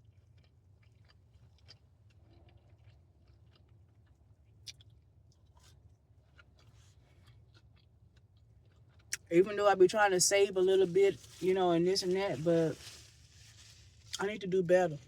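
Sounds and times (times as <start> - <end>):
person chewing food: 0.0 - 9.2.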